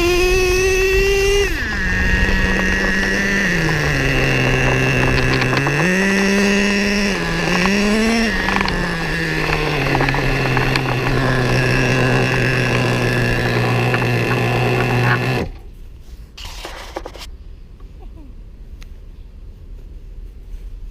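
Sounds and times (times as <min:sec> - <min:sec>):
small nitro engine idling: 0:00.0 - 0:15.8, 0:16.4 - 0:17.3
faint background noise: 0:17.3 - 0:20.9.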